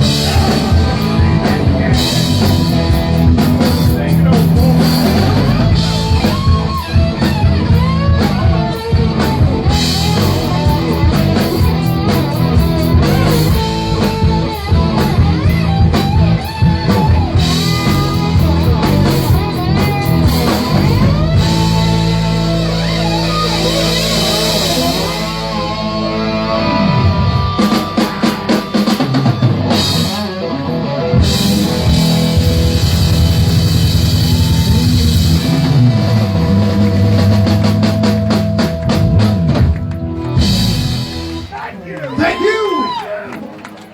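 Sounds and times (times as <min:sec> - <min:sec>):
electric guitar lead: 0:00.0 - 0:41.5
drum kit: 0:00.0 - 0:41.7
bass: 0:00.0 - 0:43.1.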